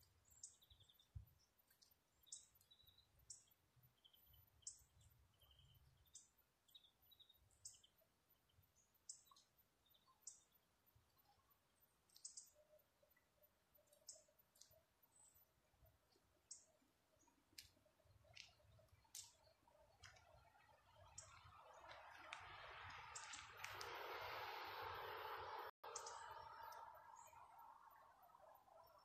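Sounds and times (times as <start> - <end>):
faint clicks and chirps: 0.0 - 25.2, 25.8 - 29.0
train approaching: 21.8 - 27.1.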